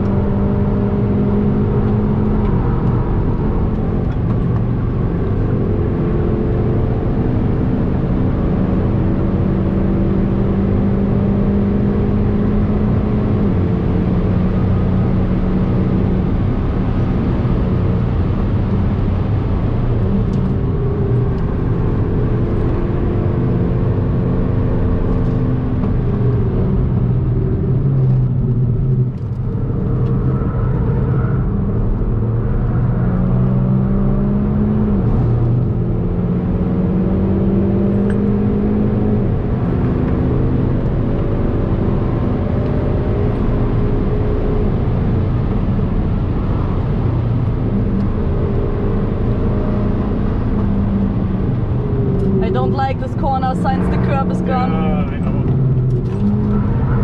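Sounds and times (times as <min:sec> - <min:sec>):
car engine revving through gears: 0:00.0 - 0:57.0
tyre and road noise: 0:12.8 - 0:57.0.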